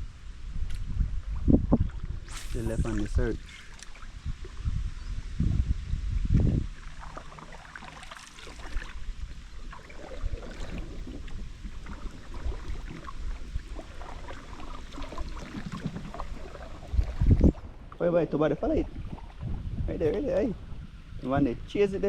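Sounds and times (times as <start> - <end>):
wind rumble on microphone: 0.0 - 7.7, 8.4 - 22.0
water splashing: 1.9 - 4.7, 6.6 - 20.6.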